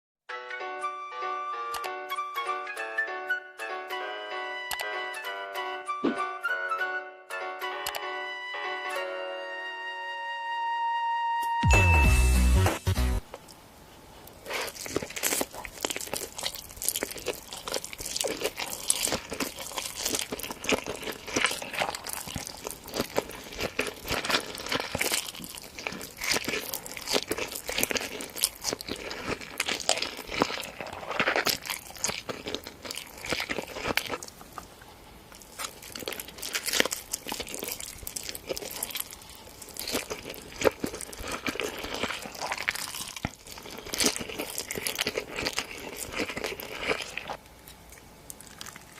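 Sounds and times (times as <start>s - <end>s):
person chewing crunchy food: 12.2s - 48.9s.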